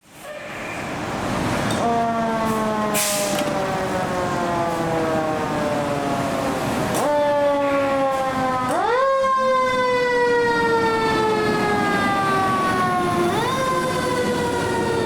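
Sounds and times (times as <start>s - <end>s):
fire engine siren: 0.2s - 15.0s
hiss burst: 2.9s - 3.4s.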